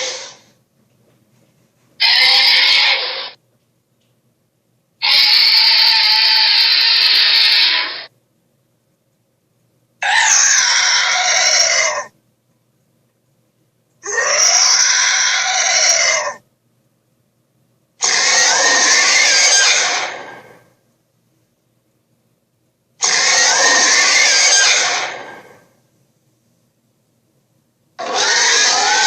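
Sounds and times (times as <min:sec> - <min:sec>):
cartoon dinosaur screech: 0:00.0 - 0:00.5, 0:02.0 - 0:03.4, 0:05.0 - 0:08.1, 0:10.0 - 0:12.1, 0:14.0 - 0:16.4, 0:18.0 - 0:20.7, 0:23.0 - 0:25.7, 0:28.0 - 0:29.0.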